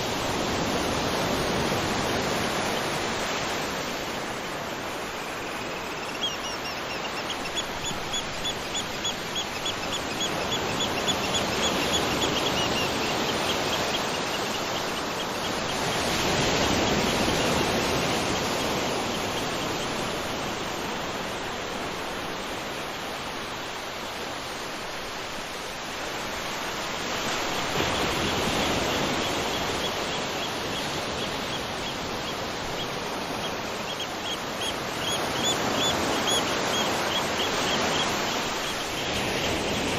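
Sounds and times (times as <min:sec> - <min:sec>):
bird chirping: 0:05.1 - 0:15.8.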